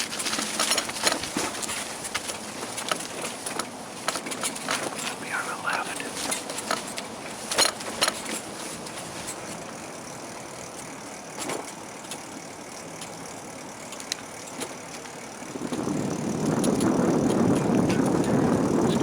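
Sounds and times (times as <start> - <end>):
bicycle tyres rolling hiss: 0.0 - 19.0
small clicks: 13.9 - 15.2.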